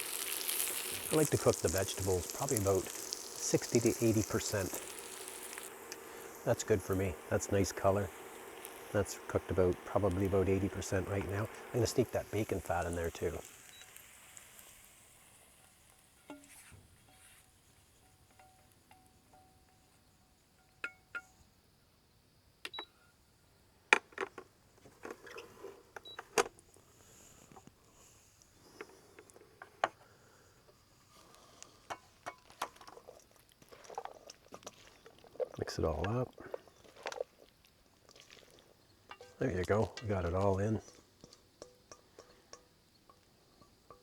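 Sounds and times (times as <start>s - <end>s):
utensil clinking against cookware: 39.1s - 44.0s.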